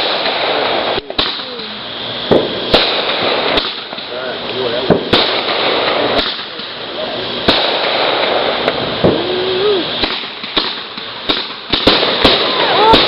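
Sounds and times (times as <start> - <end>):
fireworks bangs: 0.0 - 13.0
fireworks crackling hiss: 0.0 - 13.0
person exclaiming: 9.0 - 10.0, 12.5 - 13.0.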